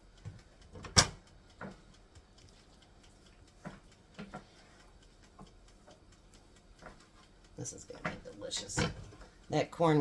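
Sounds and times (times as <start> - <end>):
soft knocks and clicks: 0.2 - 2.7, 3.4 - 6.0.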